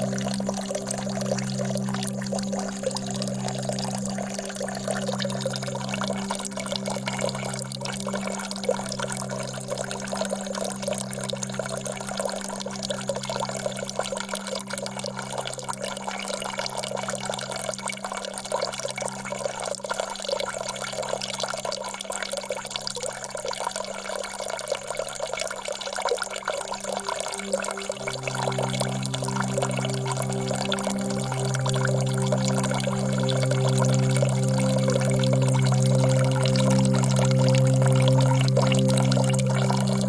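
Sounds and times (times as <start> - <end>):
low musical drone: 0.0 - 17.9, 26.4 - 40.0.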